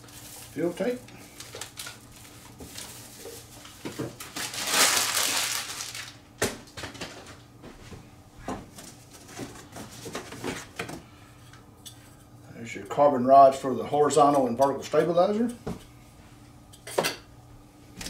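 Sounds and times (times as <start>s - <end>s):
packaging rustling: 0.0s - 6.2s.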